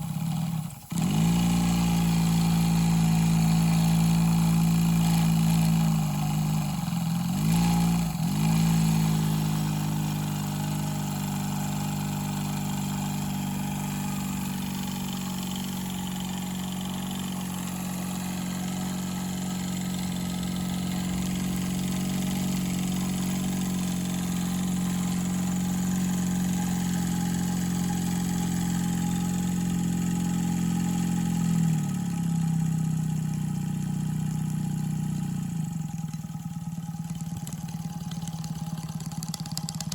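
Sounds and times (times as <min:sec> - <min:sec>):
model steam engine humming: 0:33.0 - 0:39.9.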